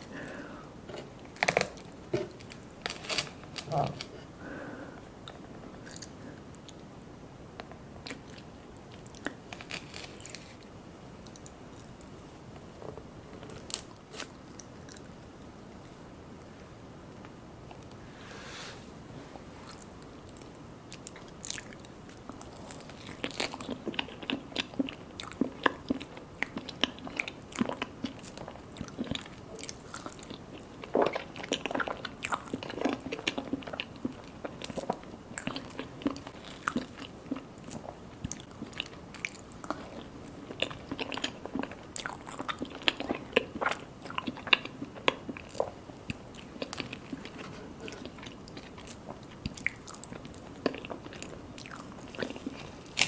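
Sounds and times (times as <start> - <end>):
person chewing and biting: 20.4 - 53.0.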